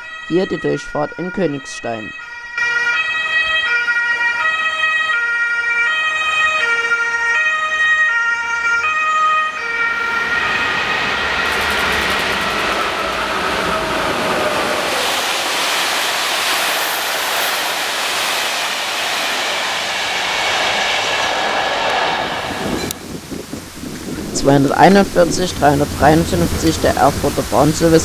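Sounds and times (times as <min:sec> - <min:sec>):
two-tone siren: 0:00.0 - 0:24.3
train wheels rumbling on rail: 0:09.7 - 0:28.0.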